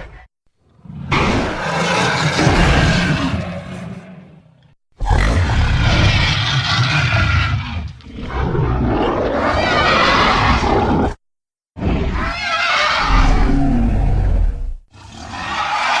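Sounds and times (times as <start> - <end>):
loud creature roars: 5.0 - 11.2, 11.8 - 16.0.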